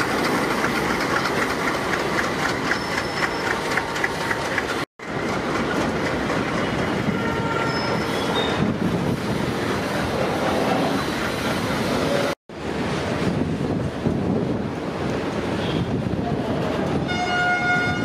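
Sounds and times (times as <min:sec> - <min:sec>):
wheels clicking over rail joints: 0:00.0 - 0:08.0
train rumbling: 0:00.0 - 0:18.0
faint high wheel squeals: 0:02.6 - 0:04.1, 0:07.3 - 0:08.7.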